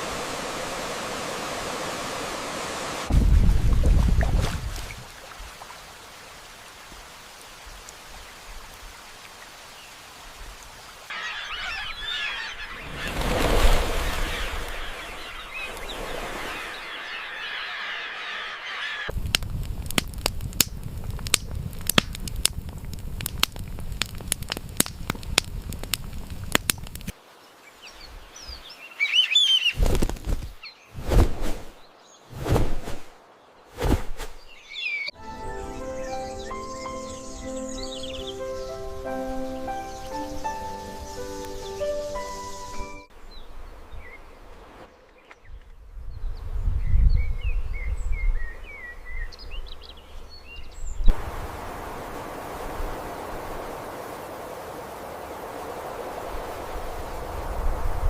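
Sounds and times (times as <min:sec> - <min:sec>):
faint steady hiss: 0:00.0 - 0:03.3, 0:04.4 - 0:11.7, 0:19.1 - 0:29.4, 0:30.0 - 0:45.5, 0:49.4 - 0:58.0
birds chirping: 0:10.8 - 0:19.2, 0:27.3 - 0:31.0, 0:34.4 - 0:51.2
dense sharp crackling clicks: 0:19.1 - 0:27.1.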